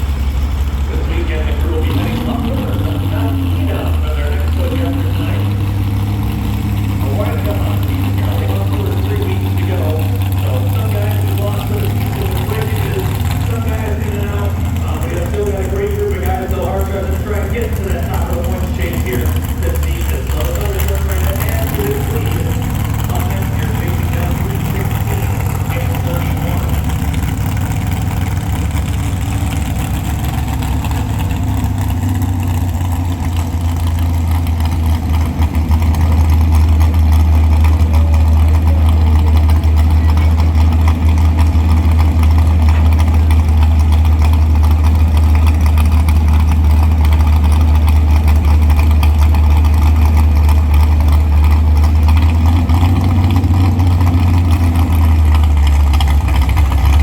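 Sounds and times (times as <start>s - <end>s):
truck engine droning: 0.0s - 57.0s.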